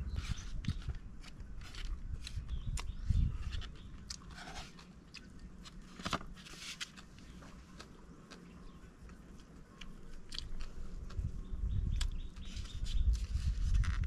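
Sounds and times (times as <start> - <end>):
person chewing and crunching food: 3.8 - 6.0, 6.9 - 11.3.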